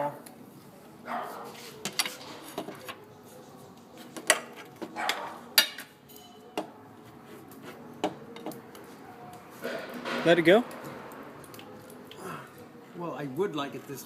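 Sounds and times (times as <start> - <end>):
metal tools clinking and clanking: 4.3 - 6.6.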